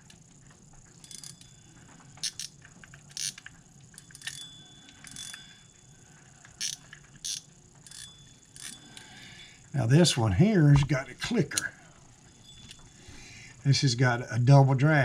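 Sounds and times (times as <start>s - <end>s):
fishing reel gears whirring: 0.9s - 10.3s
reel clicker clicking: 2.2s - 5.6s, 6.4s - 9.1s.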